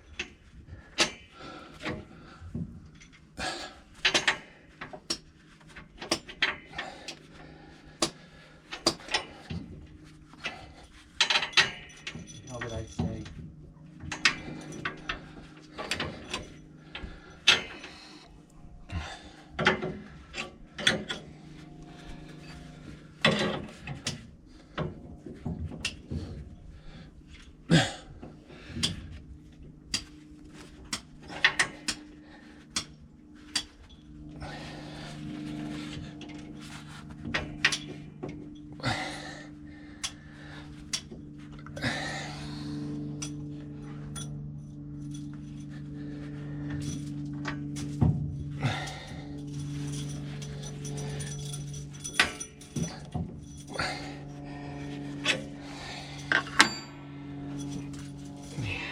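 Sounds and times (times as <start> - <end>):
steady low hum: 0.0 - 58.9
metal tools clanking: 10.4 - 18.3, 18.9 - 26.8, 33.5 - 58.9.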